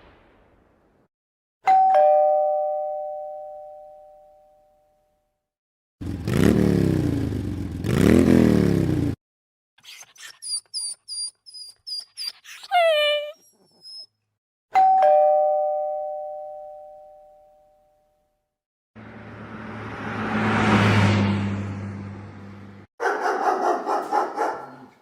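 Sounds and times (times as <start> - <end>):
two-tone doorbell chime: 1.7 - 5.1, 14.8 - 18.1
rushing sound with low hum: 19.0 - 22.8.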